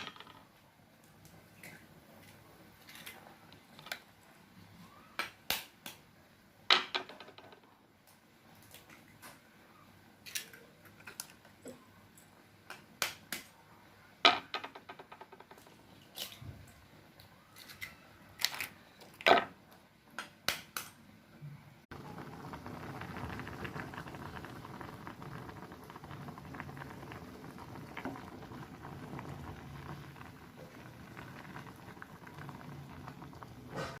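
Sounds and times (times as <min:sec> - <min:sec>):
egg sizzling in hot oil: 0:21.9 - 0:34.0.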